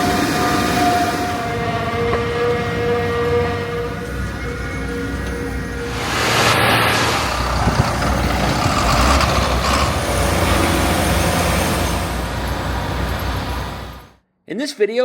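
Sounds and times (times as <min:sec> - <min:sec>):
heavy diesel machinery running: 0:00.0 - 0:14.2.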